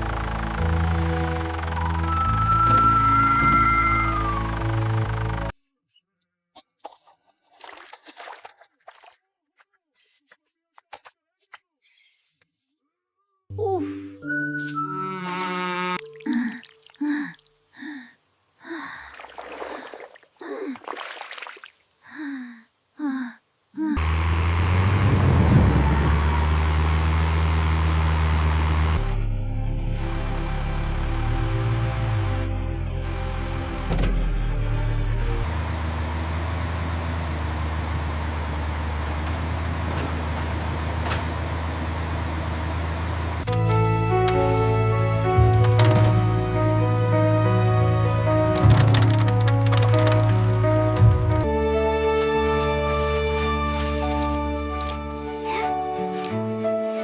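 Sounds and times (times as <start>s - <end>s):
low motor rumble: 0.0s - 5.6s, 24.0s - 55.3s
cartoon voice gasping and panting: 13.6s - 14.2s, 22.1s - 24.0s.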